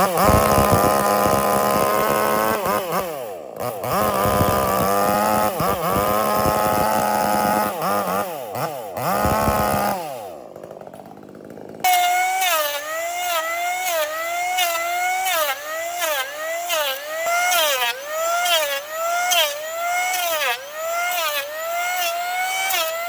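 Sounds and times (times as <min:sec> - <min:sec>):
higher-pitched motor wavering: 0:00.0 - 0:10.4
power tool motor running: 0:00.0 - 0:23.0.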